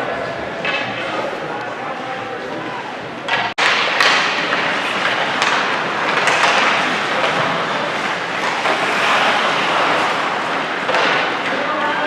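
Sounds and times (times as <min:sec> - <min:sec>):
ice rink crowd noise: 0:00.0 - 0:12.0.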